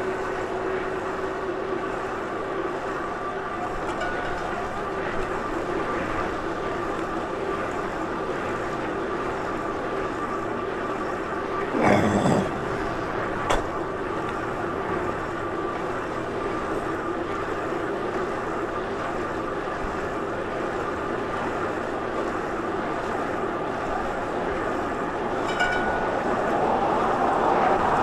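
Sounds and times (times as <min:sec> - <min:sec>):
bike running noise: 0:12.5 - 0:28.0.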